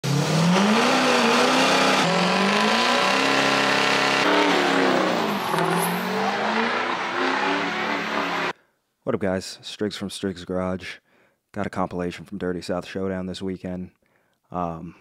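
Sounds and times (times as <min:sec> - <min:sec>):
truck engines revving high: 0:00.0 - 0:08.5.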